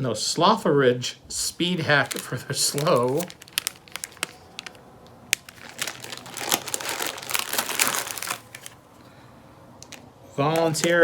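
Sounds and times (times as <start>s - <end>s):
snack wrappers crinkling: 1.6s - 9.2s, 9.8s - 11.0s.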